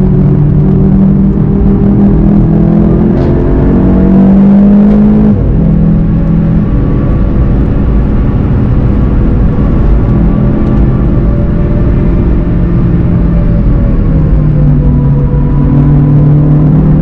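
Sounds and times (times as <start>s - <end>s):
car engine at steady revs: 0.0s - 17.0s
road and tyre noise: 0.0s - 17.0s.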